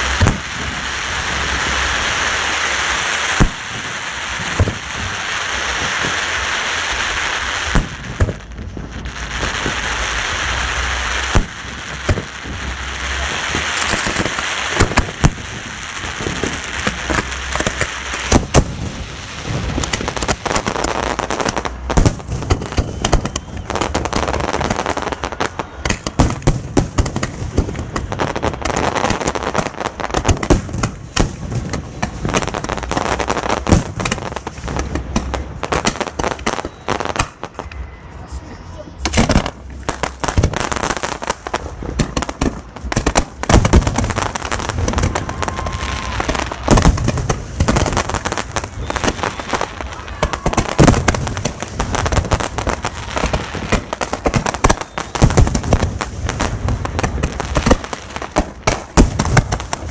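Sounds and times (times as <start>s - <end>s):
firework hissing rush: 0.0s - 36.5s
firework bangs and crackles: 0.0s - 59.9s.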